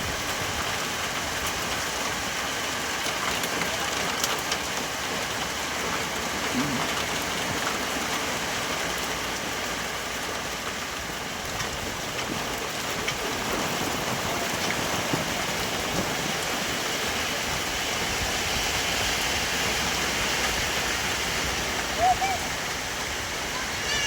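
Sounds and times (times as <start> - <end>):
heavy rain falling: 0.0 - 24.0
rain drop taps: 2.9 - 9.5, 10.3 - 16.6.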